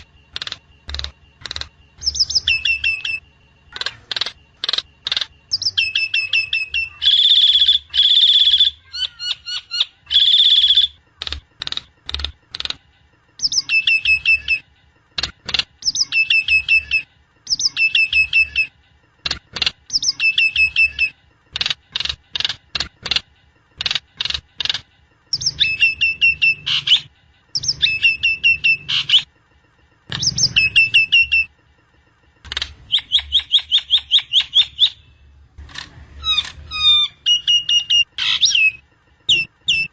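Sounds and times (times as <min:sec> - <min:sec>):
starling calling: 0:32.5 - 0:35.1, 0:36.2 - 0:39.9.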